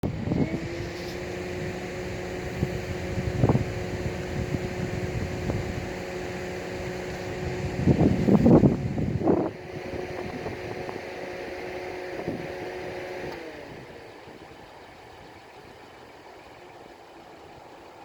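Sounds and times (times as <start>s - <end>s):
electric locomotive humming: 0.0s - 18.0s.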